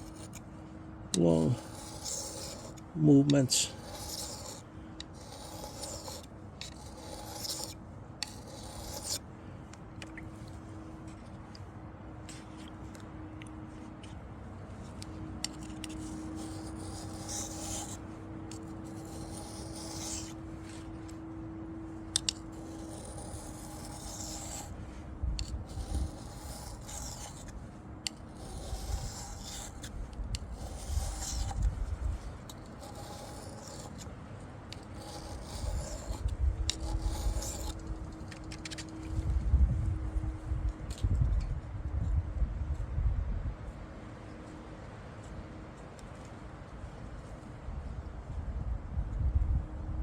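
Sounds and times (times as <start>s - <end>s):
knife scraping on sharpening stone: 0.0s - 0.4s, 1.1s - 9.2s, 15.4s - 20.4s, 22.2s - 24.7s, 25.4s - 31.7s, 32.5s - 34.1s, 34.7s - 37.9s.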